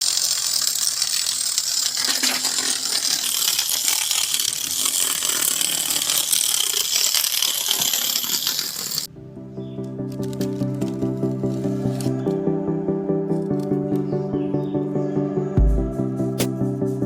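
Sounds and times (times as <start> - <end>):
mechanical clicking and rattling: 0.0 - 9.1.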